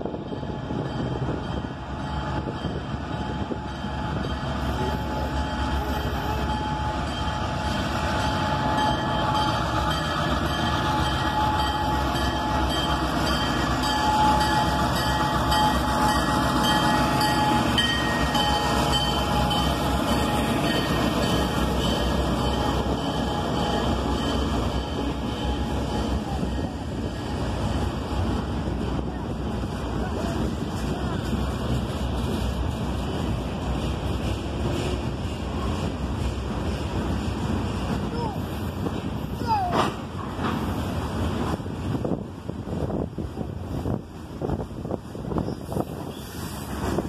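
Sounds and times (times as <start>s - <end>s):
diesel locomotives rumbling: 0.0s - 47.0s.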